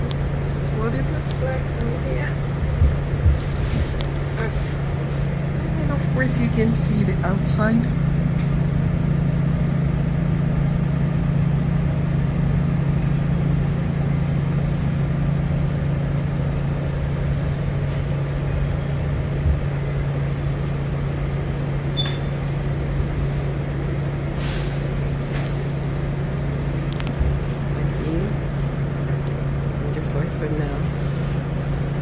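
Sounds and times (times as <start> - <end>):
subway train rumbling: 0.0 - 32.0
short hiss: 24.4 - 25.8.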